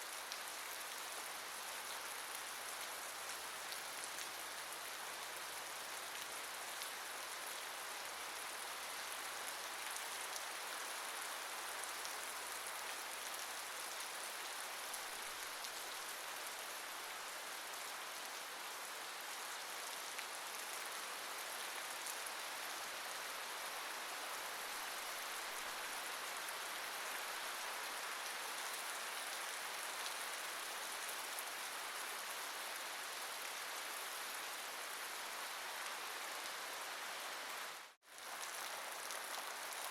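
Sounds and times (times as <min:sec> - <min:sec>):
rain pattering: 0:37.7 - 0:39.9.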